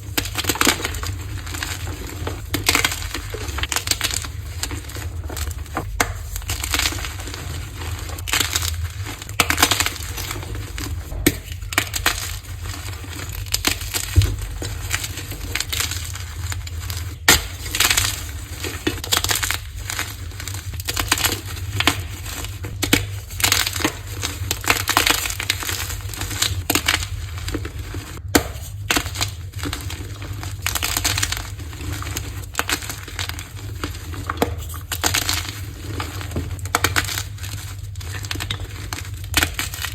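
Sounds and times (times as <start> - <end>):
chalk blocks crunching: 0.0 - 39.9.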